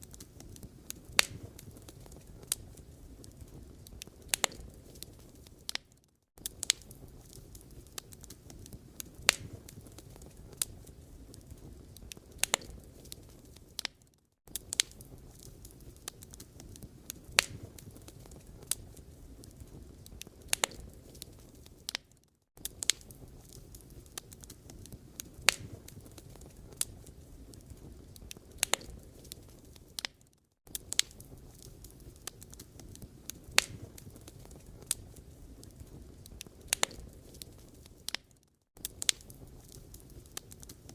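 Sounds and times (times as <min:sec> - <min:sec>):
low rumble of burning: 0:00.0 - 0:40.9
wood fire crackling and popping: 0:00.0 - 0:40.9.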